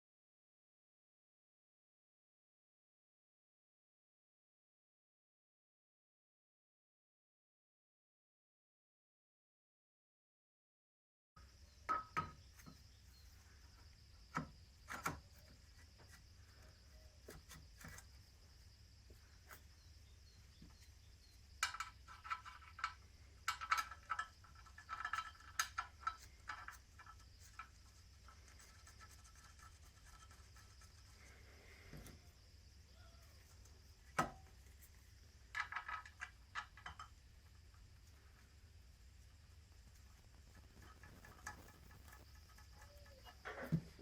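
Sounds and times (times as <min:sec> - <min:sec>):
metal tools clinking and knocking: 0:20.7 - 0:27.7, 0:35.5 - 0:37.2.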